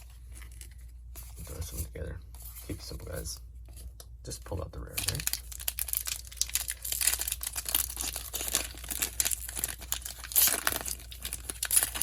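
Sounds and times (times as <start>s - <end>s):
foil wrapper crinkling: 4.9s - 12.0s.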